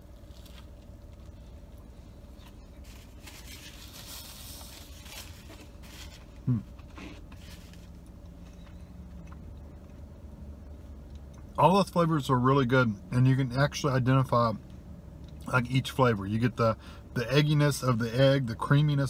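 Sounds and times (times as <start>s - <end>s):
paper napkin rustling: 2.6s - 6.4s.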